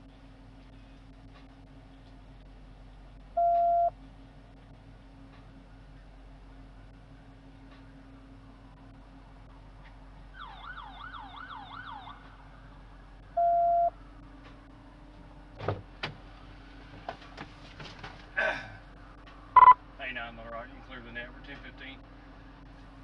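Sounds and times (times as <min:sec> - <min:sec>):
police siren yelping: 0:10.3 - 0:12.7
loud electronic beep: 0:13.4 - 0:13.9, 0:19.6 - 0:19.8.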